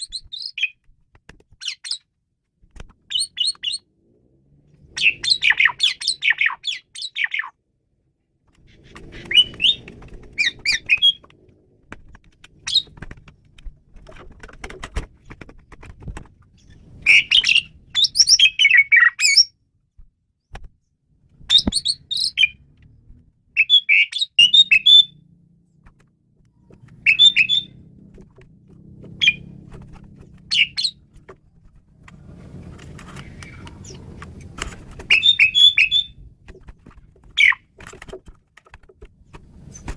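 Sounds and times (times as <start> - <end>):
starling chattering and whistling: 5.0 - 7.5, 9.2 - 11.2, 17.0 - 19.5, 23.6 - 25.2, 27.0 - 27.8, 29.2 - 29.5, 30.5 - 31.0, 35.1 - 36.2, 37.4 - 37.6.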